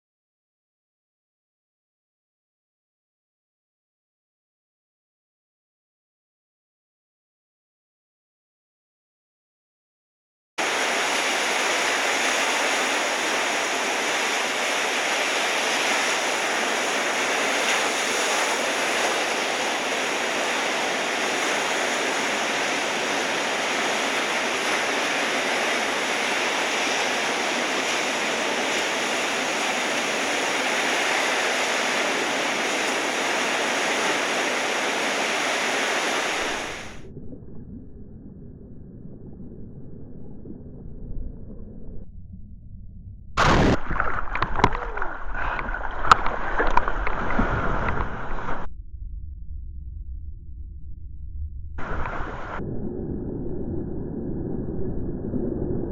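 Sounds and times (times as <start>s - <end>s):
wind: 10.6s - 37.0s
ocean surf breaking: 10.6s - 37.1s, 43.4s - 48.7s, 51.8s - 52.6s
muffled low rumble: 36.4s - 55.9s.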